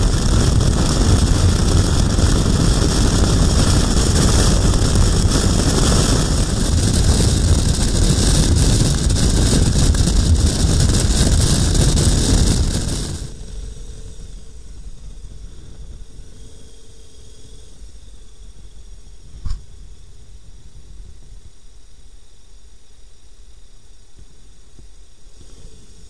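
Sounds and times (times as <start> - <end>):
motorcycle engine: 0.0 - 14.8
wind and road rush: 0.0 - 17.4
faint steady hum: 0.0 - 26.0.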